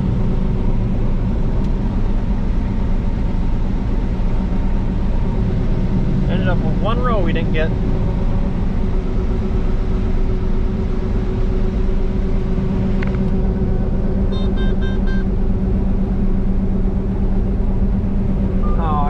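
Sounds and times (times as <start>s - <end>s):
combine harvester engine hum: 0.0s - 19.0s
short electronic beeps: 14.3s - 15.3s.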